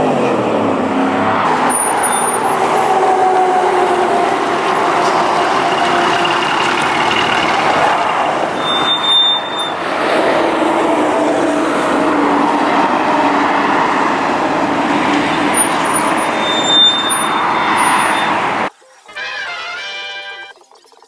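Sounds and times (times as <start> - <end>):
loud steady rushing noise: 0.0 - 18.7
vehicle engine running: 0.0 - 18.7.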